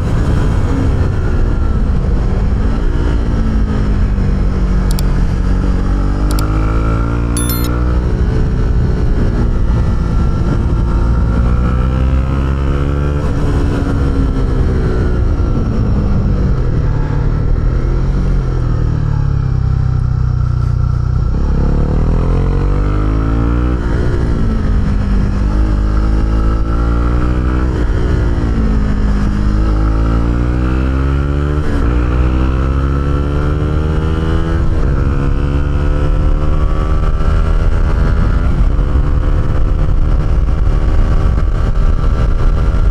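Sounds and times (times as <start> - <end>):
motorcycle engine revving: 4.5 - 7.7.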